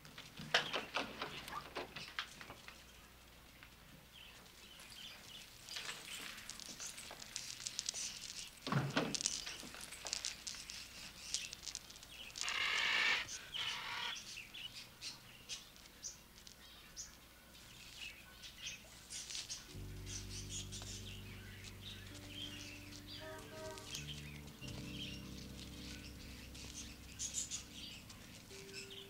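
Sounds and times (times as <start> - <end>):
birds chirping and twittering: 0.0 - 29.0
low sustained music chords: 19.6 - 29.0.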